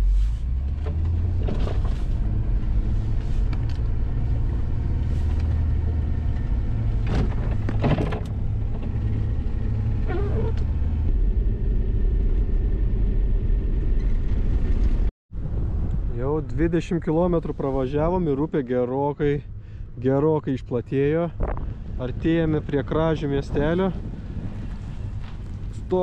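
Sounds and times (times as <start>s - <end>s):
car engine running under load: 0.0s - 16.1s, 23.4s - 26.0s.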